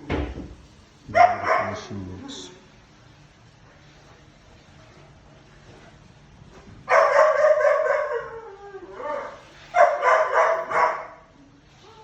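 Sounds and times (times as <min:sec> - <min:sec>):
dog barking and whining: 0:01.1 - 0:01.9, 0:06.9 - 0:12.0.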